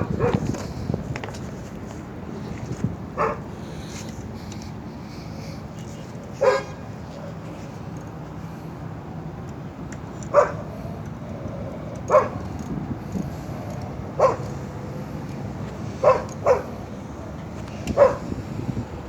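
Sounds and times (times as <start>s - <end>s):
dog barking: 0.0s - 0.4s, 3.2s - 3.5s, 6.4s - 6.8s, 10.3s - 10.6s, 12.1s - 12.4s, 14.2s - 14.5s, 16.0s - 16.8s, 18.0s - 18.3s.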